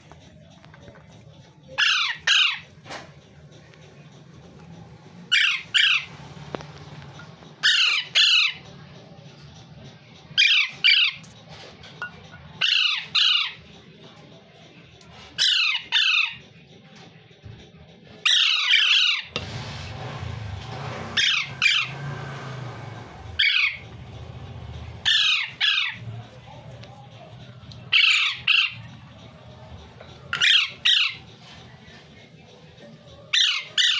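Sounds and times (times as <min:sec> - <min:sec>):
parrot squawking: 0:01.8 - 0:02.8, 0:05.3 - 0:06.4, 0:07.6 - 0:08.7, 0:10.4 - 0:11.3, 0:12.6 - 0:13.6, 0:15.4 - 0:16.4, 0:18.2 - 0:19.4, 0:21.2 - 0:22.0, 0:23.2 - 0:24.2, 0:24.8 - 0:26.7, 0:27.8 - 0:31.6, 0:33.3 - 0:33.9.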